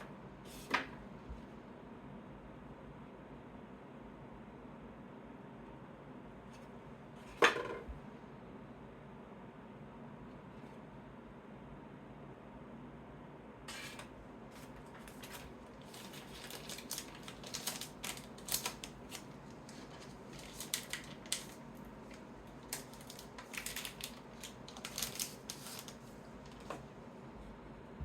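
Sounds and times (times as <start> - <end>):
trading cards being handled: 13.7 - 26.8.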